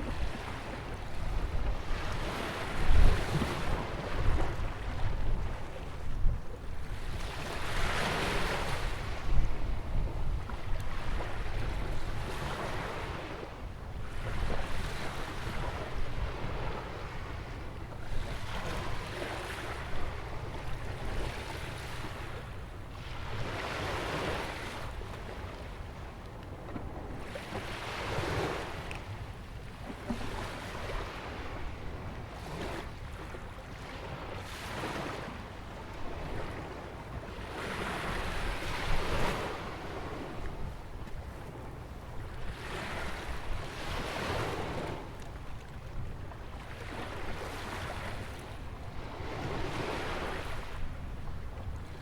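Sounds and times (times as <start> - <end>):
wind rumble on microphone: 0.0 - 52.0
ocean waves breaking: 10.9 - 52.0.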